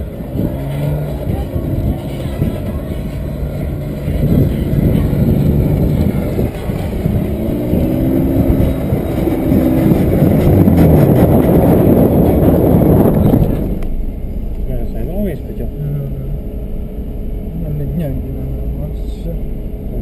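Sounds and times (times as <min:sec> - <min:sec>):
car engine revving hard: 0:00.0 - 0:13.8
heavy low rumble: 0:00.0 - 0:20.0.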